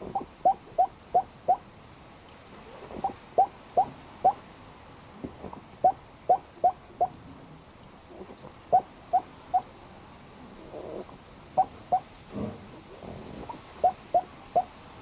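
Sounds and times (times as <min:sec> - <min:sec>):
rough dog breaths: 0:12.3 - 0:13.8.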